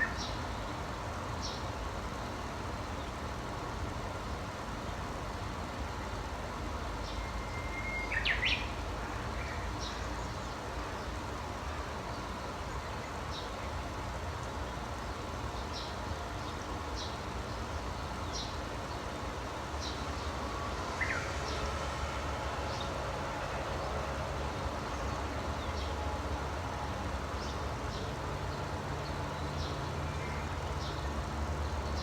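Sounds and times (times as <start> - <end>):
small birds chirping: 12.1 - 21.6.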